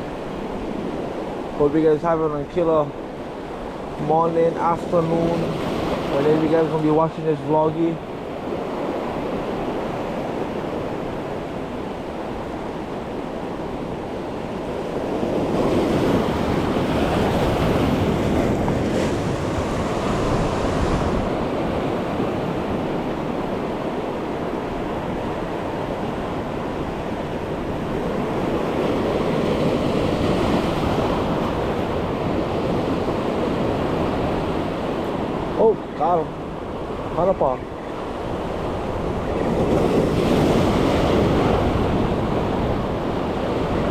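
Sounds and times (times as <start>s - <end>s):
wind buffeting microphone: 7.7s - 35.6s, 36.3s - 43.9s
waves washing against rocks: 15.0s - 23.6s.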